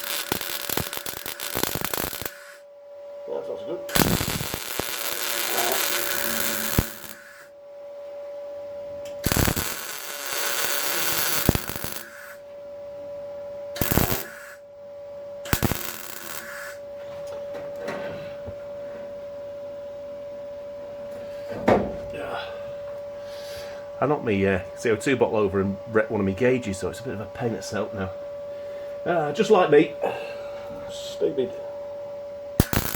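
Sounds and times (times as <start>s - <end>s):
welder crackling: 0.0s - 2.6s, 3.9s - 7.4s, 9.1s - 12.4s, 13.8s - 14.6s, 15.5s - 16.8s, 32.6s - 32.9s
welder hum: 0.0s - 2.7s, 3.3s - 7.6s, 9.0s - 12.6s, 13.7s - 14.7s, 15.4s - 18.9s, 22.6s - 32.9s.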